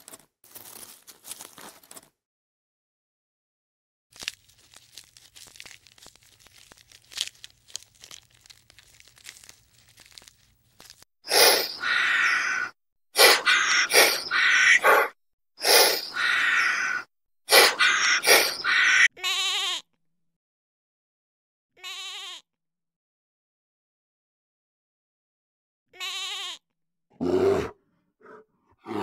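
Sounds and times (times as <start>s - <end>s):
sheep bleating: 17.6s - 19.8s, 21.8s - 22.4s, 26.0s - 26.6s.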